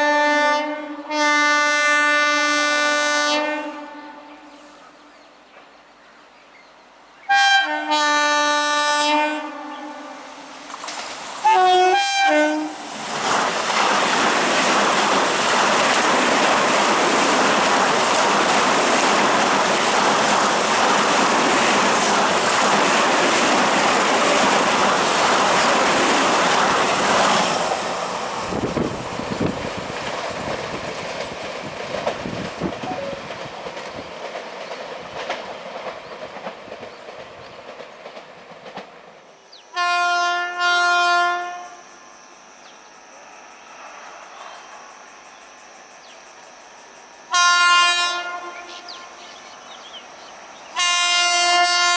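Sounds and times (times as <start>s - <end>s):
train horn blast: 0.0s - 4.8s, 7.3s - 10.3s, 11.4s - 12.9s, 39.7s - 42.4s, 47.3s - 49.3s, 50.8s - 51.9s
train coaches rushing and clattering: 10.3s - 39.4s.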